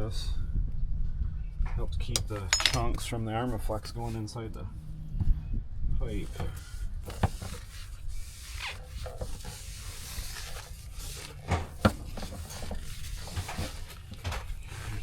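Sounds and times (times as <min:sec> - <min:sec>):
foam insulation rubbing and scraping: 0:06.1 - 0:15.0.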